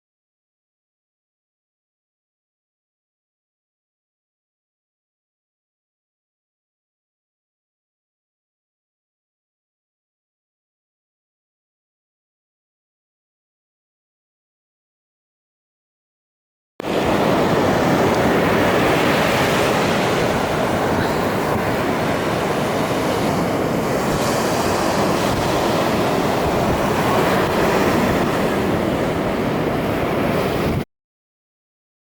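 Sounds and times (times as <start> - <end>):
sea water rushing: 16.8 - 30.8
wind: 16.8 - 30.9.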